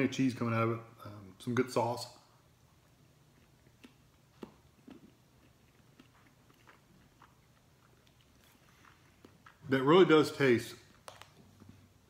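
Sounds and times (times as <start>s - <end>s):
faint chewing mouth clicks: 3.2s - 9.7s.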